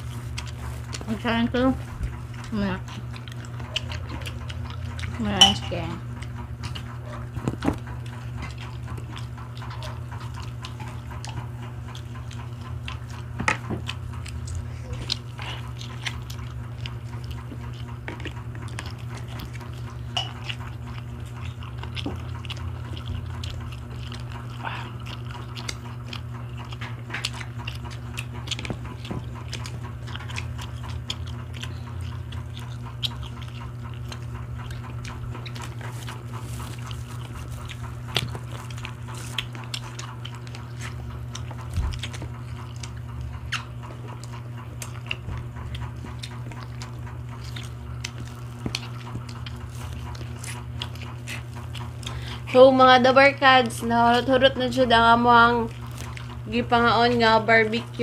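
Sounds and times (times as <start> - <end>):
people chewing: 0.0 - 58.0
skewers and dishes knocking: 5.3 - 5.8.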